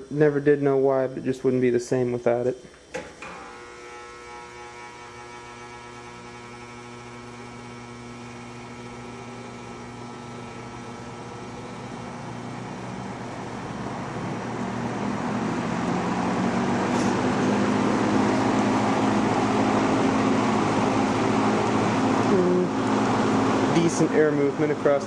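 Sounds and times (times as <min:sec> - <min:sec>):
fan motor electrical buzz: 0:00.0 - 0:25.0
rush of air from fan blades: 0:10.8 - 0:25.0.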